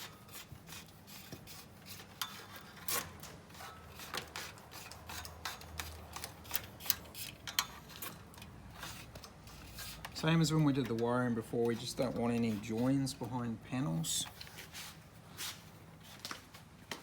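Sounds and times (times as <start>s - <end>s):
wire rubbing and scraping: 0.0s - 13.2s.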